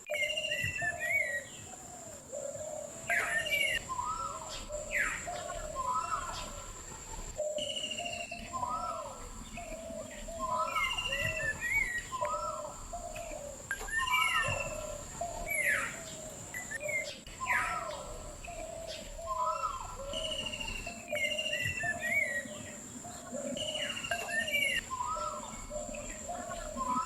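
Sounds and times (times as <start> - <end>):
birdsong chirps and whistles: 0.0 - 27.0.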